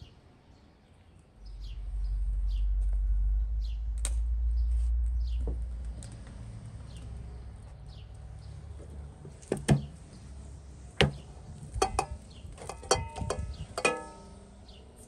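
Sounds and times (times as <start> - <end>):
small birds chirping: 0.0 - 15.0
low rumble: 1.4 - 8.2.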